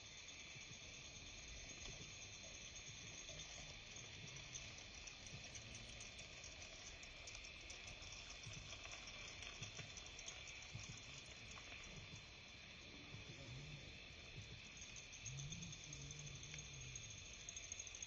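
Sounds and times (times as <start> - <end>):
insects shrilling: 0.0 - 18.0.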